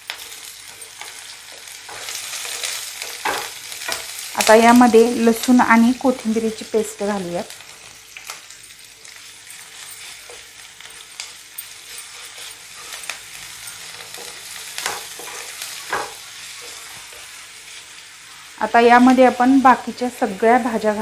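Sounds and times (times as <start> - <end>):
onion sizzling in hot oil: 0.0 - 21.0
wooden spatula scraping pan: 11.8 - 17.3.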